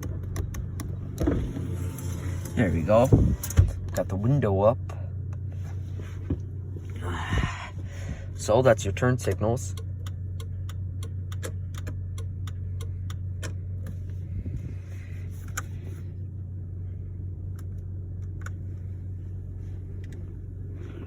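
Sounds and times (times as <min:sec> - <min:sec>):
engine idling hum: 0:00.0 - 0:21.0
turn-signal flasher ticking: 0:08.9 - 0:13.8.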